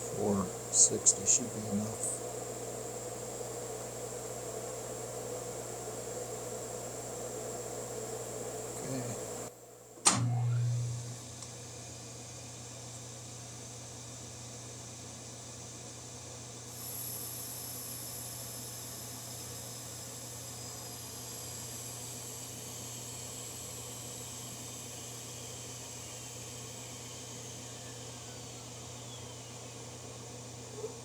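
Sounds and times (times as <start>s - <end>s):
higher whine: 0.0s - 9.5s
machine hum with hiss: 0.0s - 31.0s
sharp click: 10.0s - 11.5s.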